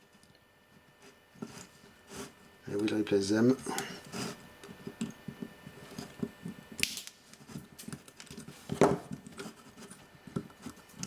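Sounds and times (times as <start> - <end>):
sharp snaps: 6.8 - 7.2.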